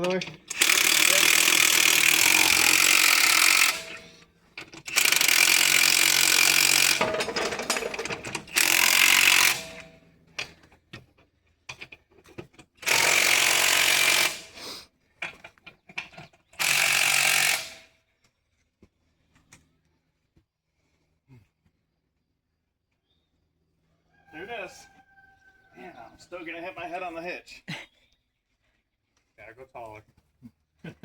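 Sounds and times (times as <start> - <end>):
impact wrench running: 0.0 - 10.0, 12.8 - 14.6, 16.6 - 17.9
clicks and clatter: 6.6 - 11.1.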